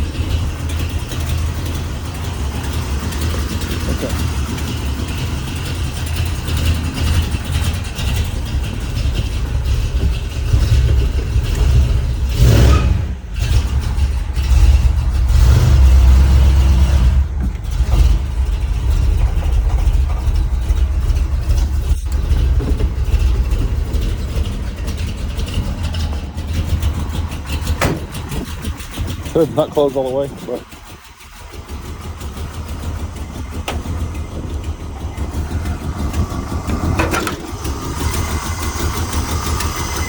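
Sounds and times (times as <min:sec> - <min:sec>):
truck engine idling: 0:00.0 - 0:40.0.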